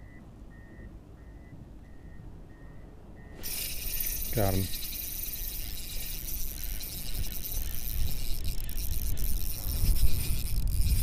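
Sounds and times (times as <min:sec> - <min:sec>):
fishing reel drag ticking: 0:03.4 - 0:11.0
wind buffeting microphone: 0:03.4 - 0:11.0.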